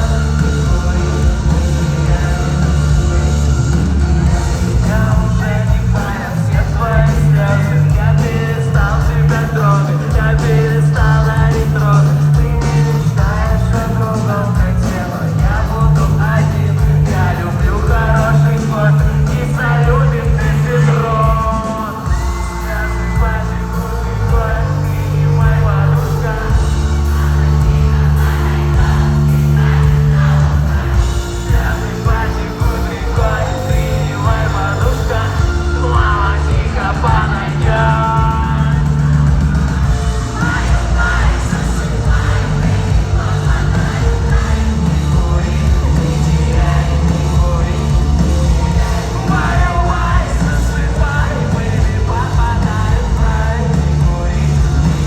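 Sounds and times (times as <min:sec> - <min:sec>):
heavy sustained bass line: 0:00.0 - 0:55.0
live rock band playing: 0:00.0 - 0:55.0
person singing: 0:00.0 - 0:55.0.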